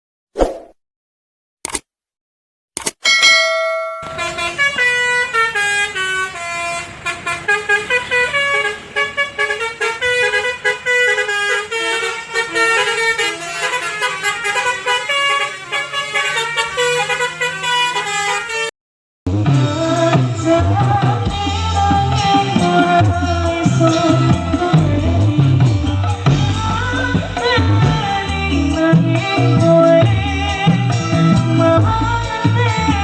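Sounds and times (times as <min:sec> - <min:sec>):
bright horn-like lead melody: 0:03.8 - 0:18.7
low bass: 0:19.3 - 0:33.0
live band playing instrumental: 0:19.4 - 0:33.0.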